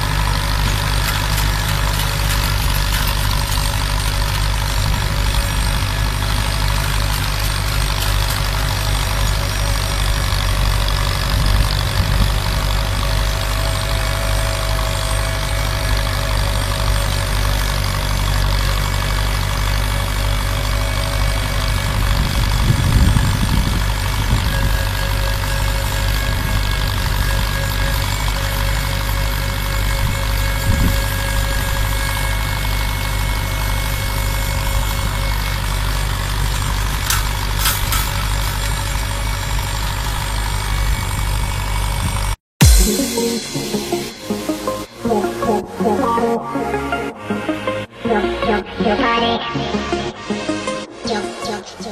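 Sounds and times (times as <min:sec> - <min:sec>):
machine humming: 0:00.0 - 0:33.6, 0:42.6 - 0:51.9.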